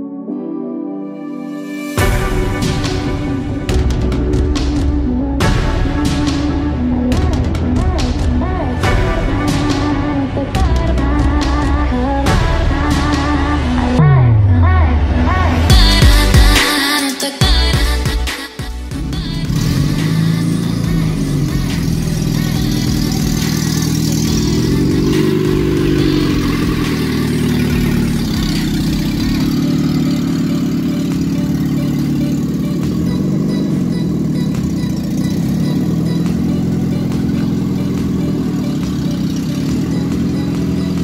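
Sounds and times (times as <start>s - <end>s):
engine idling and revving: 2.0s - 16.8s, 17.4s - 41.0s.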